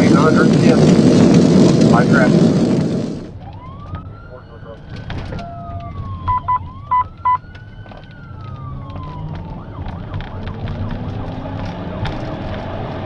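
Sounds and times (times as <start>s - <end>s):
engine and road noise: 0.0s - 13.0s
police siren wailing: 3.3s - 13.0s.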